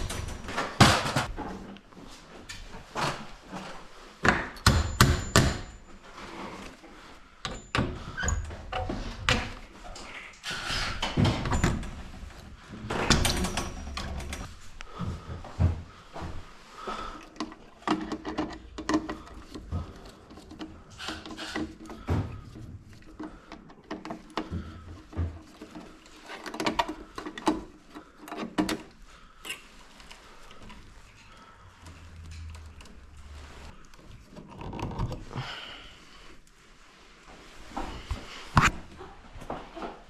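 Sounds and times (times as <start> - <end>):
tools and metal parts clunking: 0.0 - 1.8, 2.4 - 14.6, 17.4 - 35.4.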